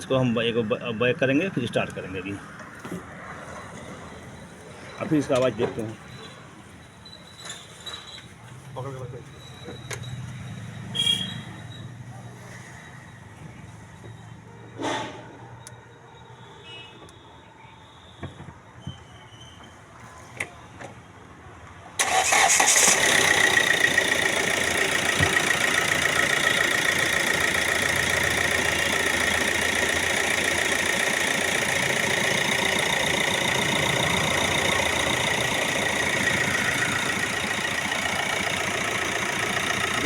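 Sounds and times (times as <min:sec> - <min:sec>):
diesel engine starting and idling: 0:22.0 - 0:40.0.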